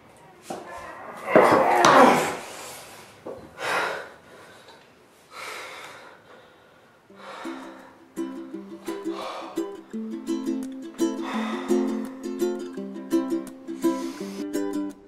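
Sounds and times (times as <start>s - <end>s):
person breathing hard: 2.3s - 8.1s, 8.8s - 9.8s, 11.0s - 12.6s, 13.7s - 14.6s.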